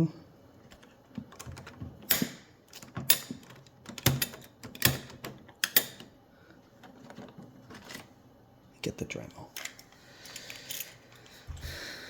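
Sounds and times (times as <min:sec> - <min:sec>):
plastic parts clicks and knocks: 0:00.7 - 0:06.1.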